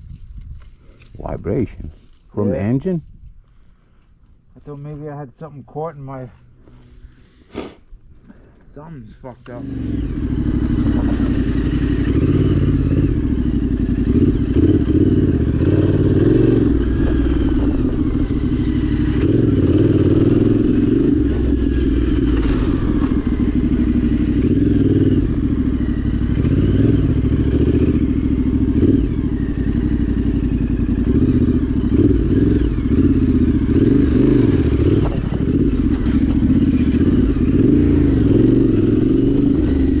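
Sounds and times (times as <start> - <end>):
rider talking: 1.1 - 3.1, 4.5 - 6.5, 8.5 - 10.0
motorcycle engine droning: 8.1 - 40.0.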